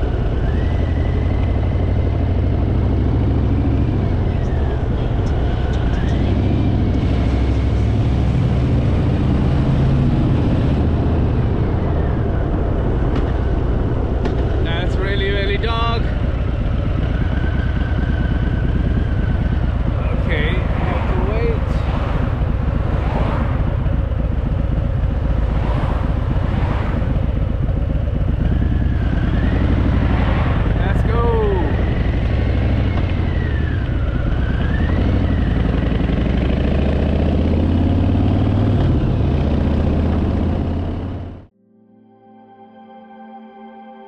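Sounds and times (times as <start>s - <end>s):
motorcycle engine running: 0.0s - 41.5s
wind rushing over microphone: 6.1s - 40.8s
wind noise: 16.0s - 30.9s.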